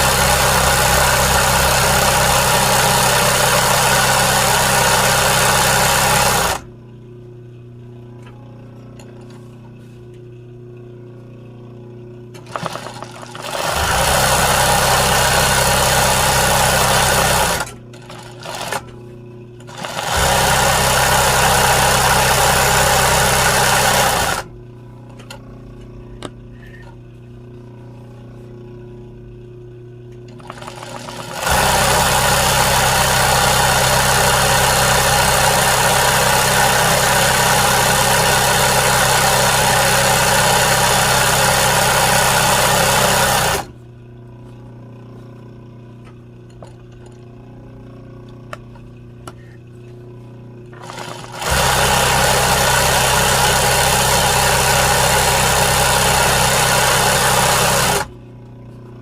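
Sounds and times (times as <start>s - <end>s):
sewing machine stitching: 0.0s - 6.7s, 12.4s - 19.0s, 19.6s - 24.5s, 30.3s - 43.7s, 50.8s - 58.1s
low steady hum: 6.6s - 13.3s, 24.5s - 30.4s.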